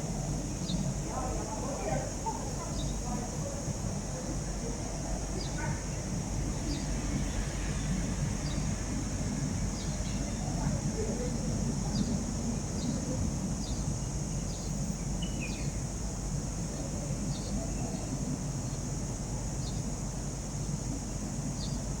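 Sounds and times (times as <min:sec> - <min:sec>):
small bird chirping: 0:13.6 - 0:15.8.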